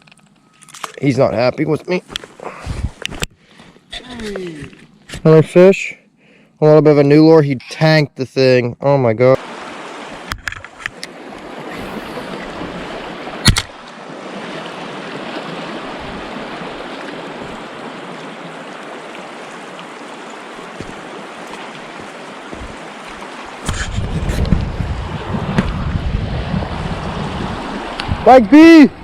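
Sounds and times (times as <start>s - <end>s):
stream water flowing: 9.2s - 29.0s.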